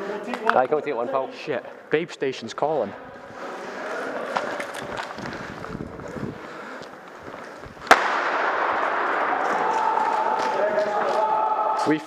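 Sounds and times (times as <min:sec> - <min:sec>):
loud sharp gunshot crack: 0:07.8 - 0:09.8.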